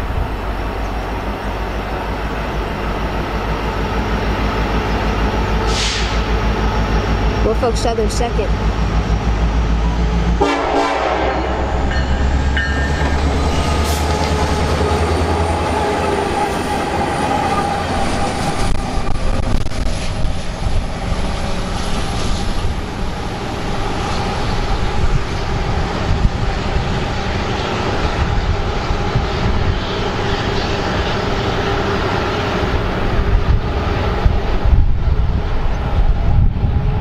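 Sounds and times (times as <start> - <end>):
diesel locomotive engine drone: 0.0 - 37.0
train wheels clattering on rails: 11.8 - 33.5.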